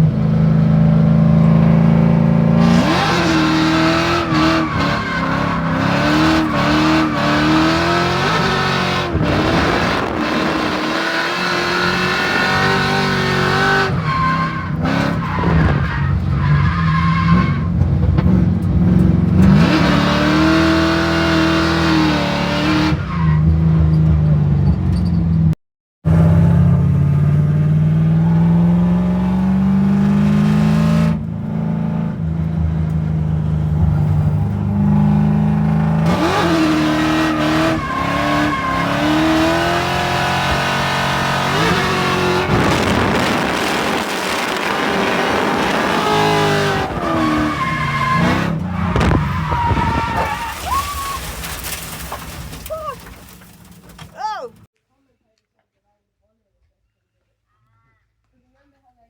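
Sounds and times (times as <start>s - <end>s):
car engine revving hard: 0.7s - 15.8s, 18.3s - 23.1s, 26.1s - 32.2s, 33.4s - 50.1s.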